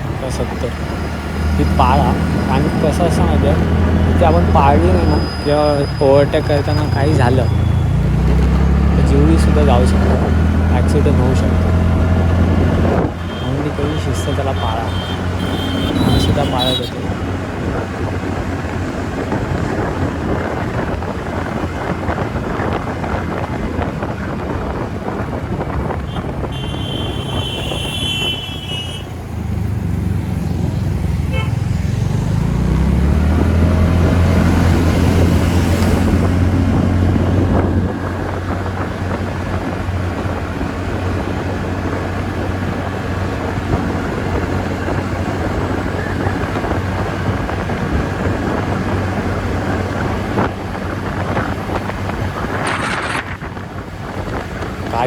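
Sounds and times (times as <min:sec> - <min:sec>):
low engine note: 0:00.0 - 0:17.7
wind and road noise: 0:00.0 - 0:55.0
scooter horn: 0:13.2 - 0:17.1, 0:26.0 - 0:29.2, 0:31.2 - 0:31.7.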